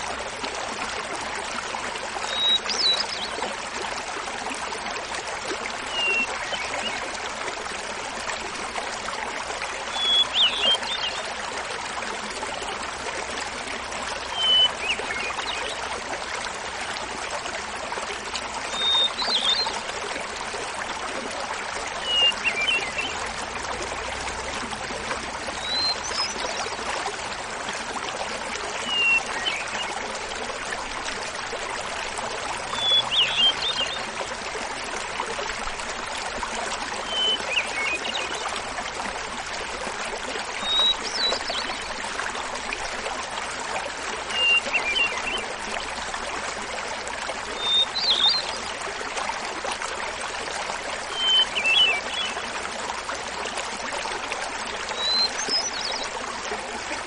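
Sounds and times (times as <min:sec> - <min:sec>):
waterfall babbling: 0:00.0 - 0:57.0.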